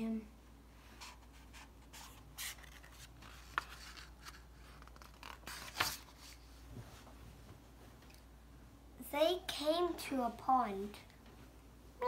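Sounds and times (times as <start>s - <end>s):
paper rustling: 1.0s - 6.5s.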